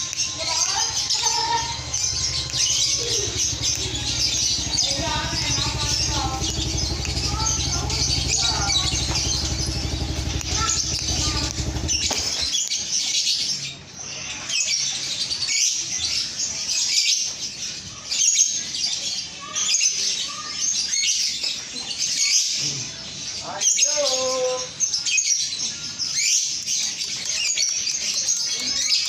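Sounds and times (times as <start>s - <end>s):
engine running: 0.0s - 12.5s.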